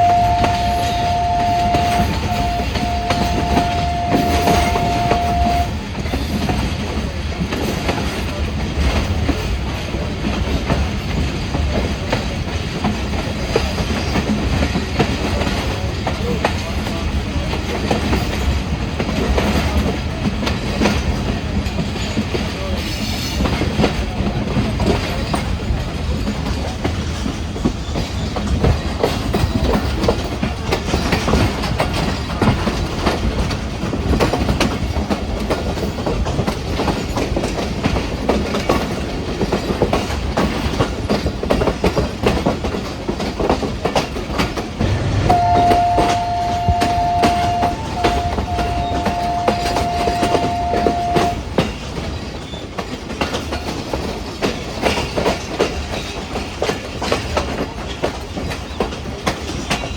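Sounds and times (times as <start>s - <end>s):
two-note tone: 0.0s - 5.7s, 44.8s - 51.4s
train wheels clattering on rails: 0.0s - 59.9s.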